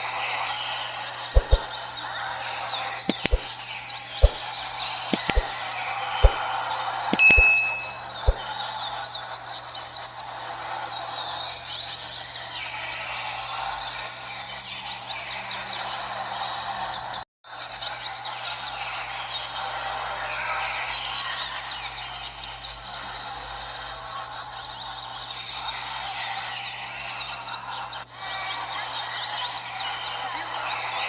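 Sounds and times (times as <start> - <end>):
chorus of birds whistling: 0.0 - 31.0
sharp knocks: 1.4 - 1.7, 3.1 - 3.5, 4.2 - 4.4, 5.2 - 5.5, 7.2 - 8.4.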